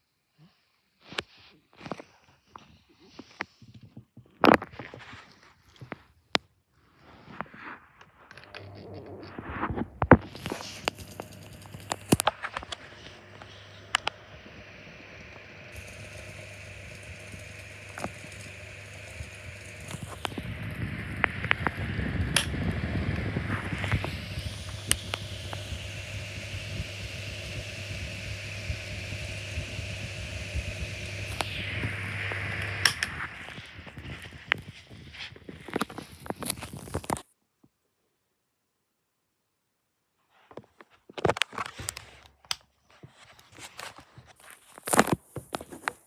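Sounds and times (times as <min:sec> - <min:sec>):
electric fan running: 0:08.2 - 0:37.1.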